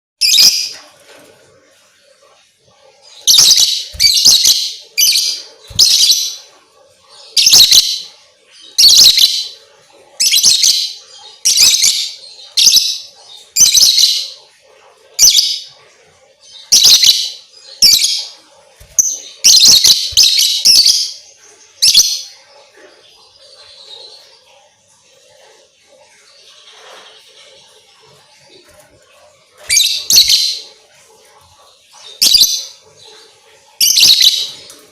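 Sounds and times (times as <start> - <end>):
lovebird shrill chirping: 3.2 - 6.4, 7.4 - 8.0, 18.8 - 21.2, 29.7 - 30.6.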